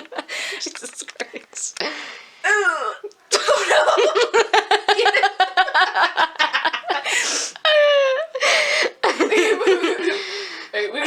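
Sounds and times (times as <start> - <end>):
gasping breaths: 0.2 - 0.8, 1.8 - 3.1, 7.0 - 7.7, 8.3 - 9.0, 10.0 - 10.8
person laughing hard: 3.3 - 10.2.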